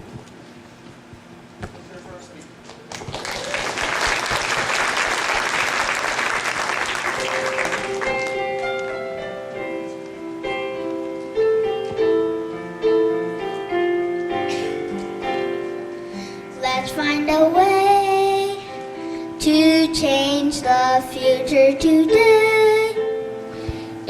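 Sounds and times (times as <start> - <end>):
audience applause: 2.9 - 9.0
piano chords and melody: 7.1 - 24.0.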